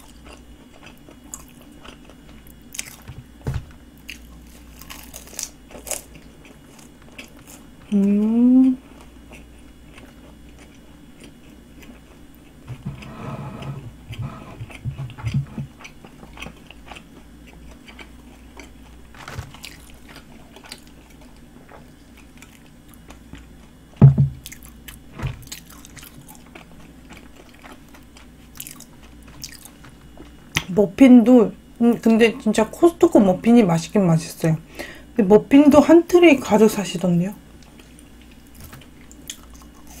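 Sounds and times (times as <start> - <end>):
crispy chewing: 0.0 - 12.6, 14.7 - 30.7, 37.6 - 40.0
short thumps: 24.0 - 24.4.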